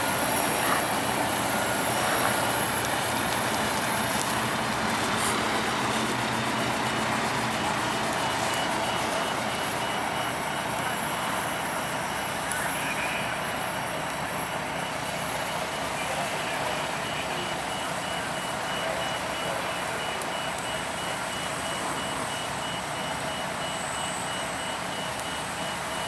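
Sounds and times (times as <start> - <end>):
vehicle engine: 0.0 - 10.0
truck reversing alarm beeping: 0.0 - 26.0.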